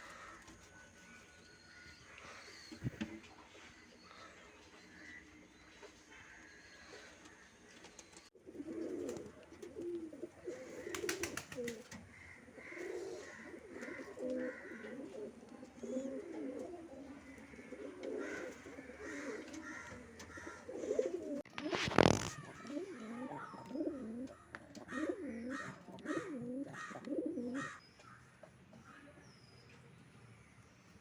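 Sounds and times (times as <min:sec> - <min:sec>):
pigeons cooing: 0:08.4 - 0:27.8.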